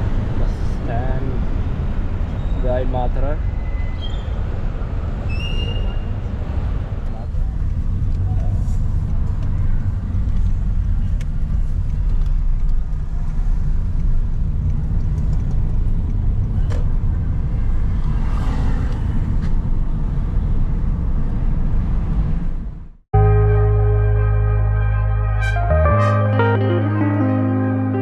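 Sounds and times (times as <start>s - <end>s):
car road and engine noise: 0.0s - 23.0s
music: 23.2s - 28.0s.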